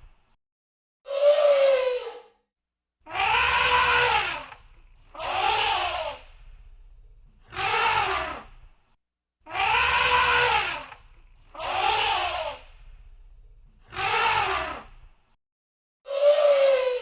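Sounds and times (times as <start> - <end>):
elephant trumpeting: 3.1 - 6.3, 7.5 - 8.5, 9.5 - 12.9, 13.9 - 14.9
low rumble: 6.2 - 7.5, 12.6 - 13.8.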